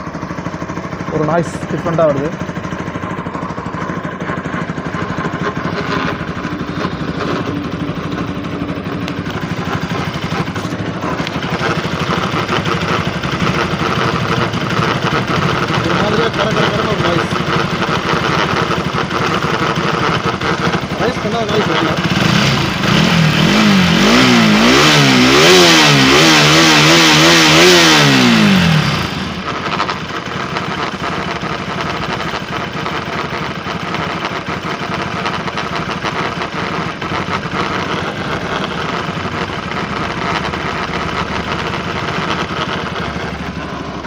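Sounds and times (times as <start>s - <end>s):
abnormal engine noise at idle: 0.0s - 44.0s
engine idling: 0.0s - 44.0s
motorcycle engine revving: 0.0s - 44.0s.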